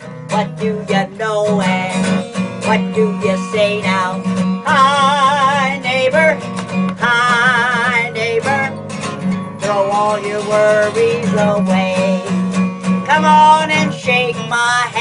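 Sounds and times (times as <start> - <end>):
acoustic guitar strumming: 0.0 - 15.0
wordless yodeled vocal: 7.0 - 8.7, 9.6 - 12.4.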